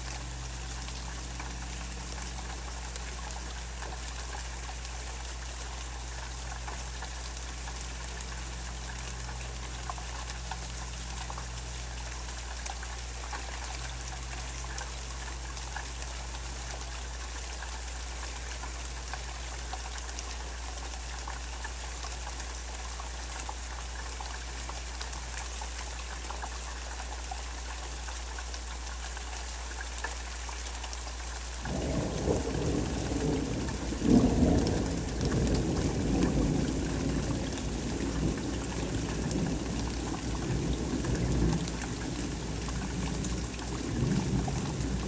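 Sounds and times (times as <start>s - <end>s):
steady rain falling: 0.0s - 45.0s
thunder rumbling: 31.7s - 45.0s.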